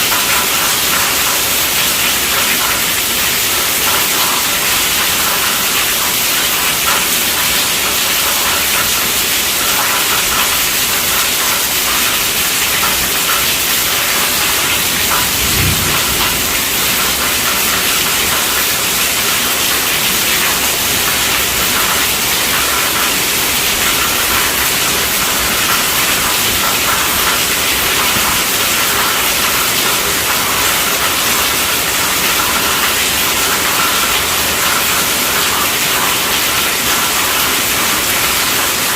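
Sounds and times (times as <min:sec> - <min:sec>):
heavy rain on a tent roof: 0:00.0 - 0:38.9
low thump: 0:15.3 - 0:16.7.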